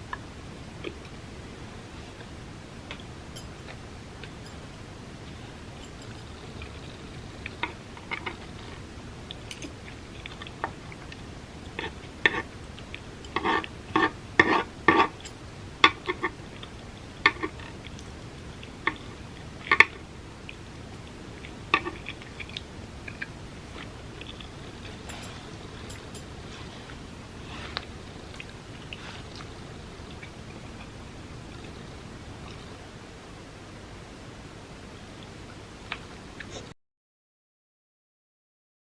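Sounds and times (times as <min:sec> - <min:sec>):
person chewing with mouth clicks: 0:05.3 - 0:32.8.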